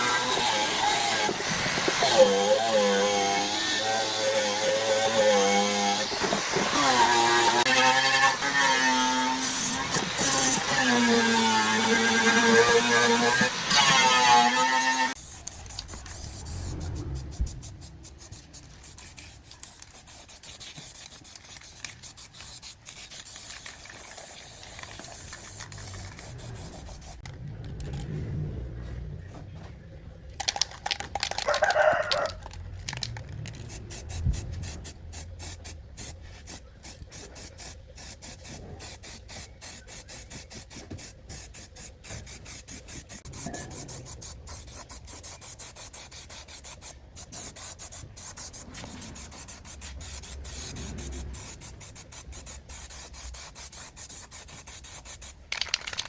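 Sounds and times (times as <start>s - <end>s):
hand rubbing and scraping: 12.5s - 27.3s, 32.9s - 56.0s.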